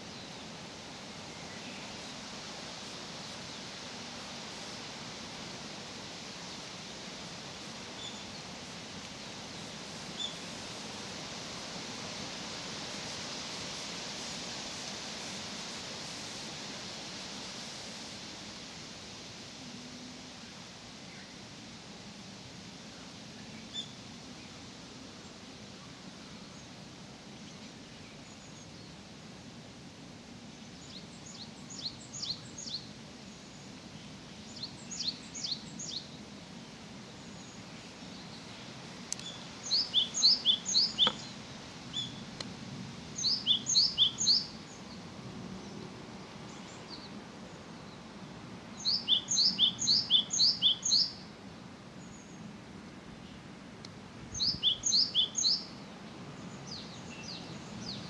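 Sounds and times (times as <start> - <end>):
faint low background noise: 0.0 - 58.0
songbird singing: 7.9 - 10.6, 23.3 - 29.0, 30.4 - 53.5, 54.3 - 58.0.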